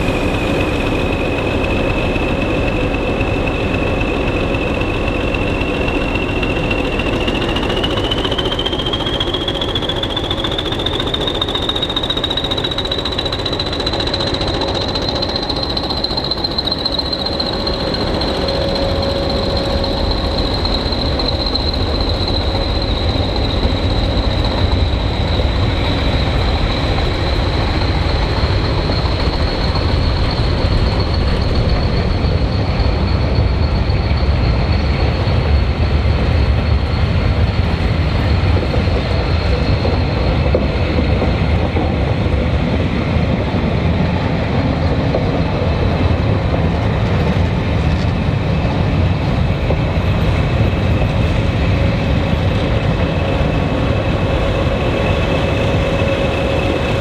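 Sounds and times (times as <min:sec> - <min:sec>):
thin high squeal: 0:00.0 - 0:37.8
train wheels rumbling: 0:00.0 - 0:57.0.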